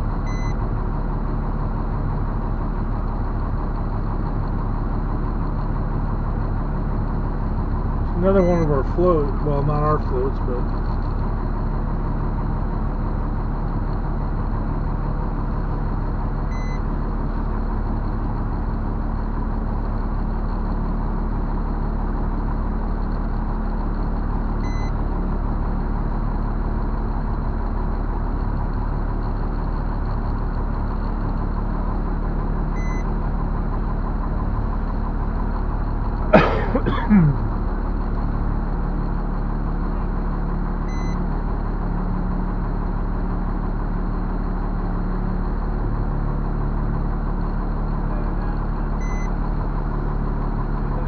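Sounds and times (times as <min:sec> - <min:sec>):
truck engine idling: 0:00.0 - 0:51.0
faint short beeps: 0:08.4 - 0:08.6, 0:40.9 - 0:41.2, 0:48.4 - 0:49.3.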